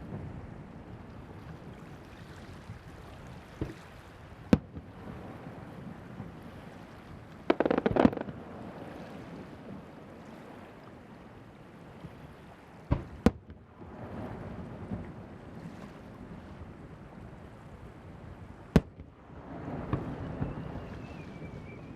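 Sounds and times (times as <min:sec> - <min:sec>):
surf and wind rushing: 0:00.0 - 0:21.9
fireworks crackling pops: 0:04.5 - 0:04.9, 0:07.4 - 0:08.4, 0:12.9 - 0:13.6, 0:18.7 - 0:21.9
fireworks sharp bangs: 0:07.5 - 0:08.4, 0:18.7 - 0:21.2.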